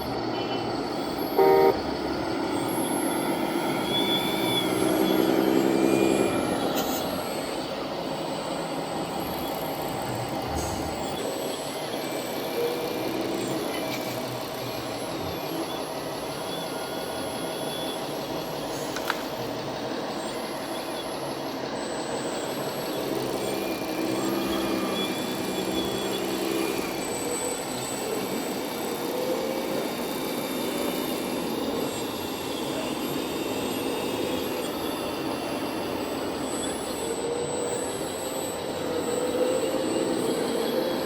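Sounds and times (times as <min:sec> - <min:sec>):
machine running with hum: 0:00.0 - 0:41.0.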